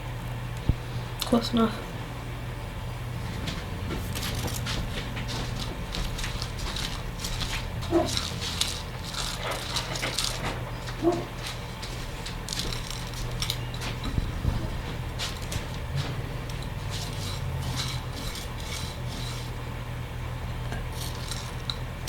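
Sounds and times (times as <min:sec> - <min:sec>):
low steady hum: 0:00.0 - 0:22.0
birdseed crackling and rustling: 0:04.0 - 0:19.8, 0:20.9 - 0:21.8.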